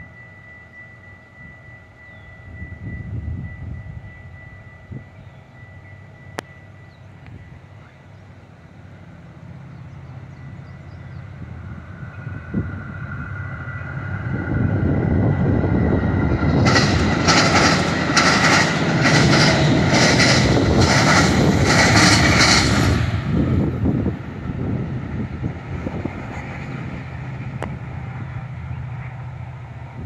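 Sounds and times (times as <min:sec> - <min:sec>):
train rumbling: 0:00.0 - 0:30.0
wheels clattering over rail joints: 0:16.3 - 0:23.0.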